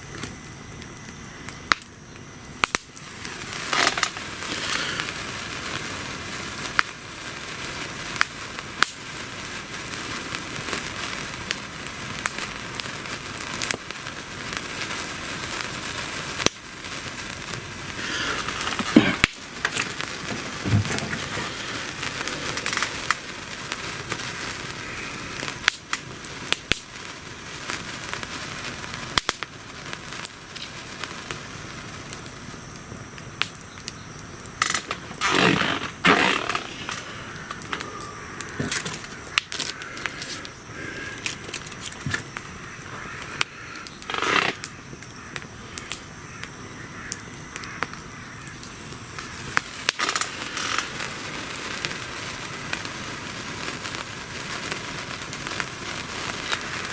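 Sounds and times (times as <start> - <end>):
campfire crackling and popping: 0.0 - 56.9.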